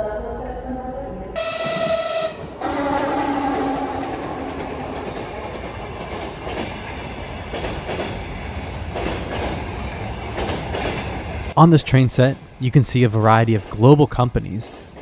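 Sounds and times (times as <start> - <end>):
diesel locomotive tones: 1.4 - 9.0
train wheel rumble: 1.4 - 11.6
wheels clacking over rail joints: 4.1 - 11.4.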